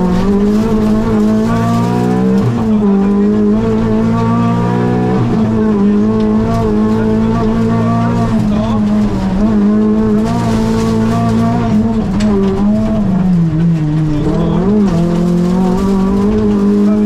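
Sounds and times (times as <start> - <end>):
rally car engine at full throttle: 0.0 - 17.0
road noise: 0.0 - 17.0.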